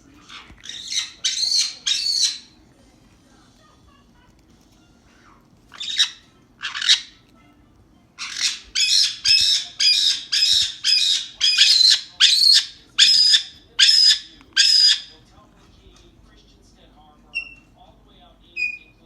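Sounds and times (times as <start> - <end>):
parrot squawking: 0.2 - 2.6, 5.7 - 7.3, 8.2 - 15.2, 17.3 - 17.7, 18.6 - 19.0.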